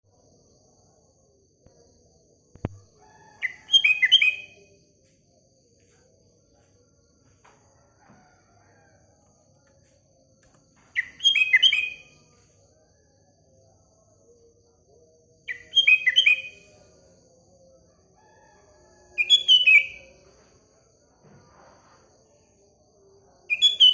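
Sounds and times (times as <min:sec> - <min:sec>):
bird song whistled notes: 0:03.4 - 0:04.7, 0:10.9 - 0:12.3, 0:15.5 - 0:16.8, 0:19.2 - 0:20.2, 0:23.5 - 0:23.9.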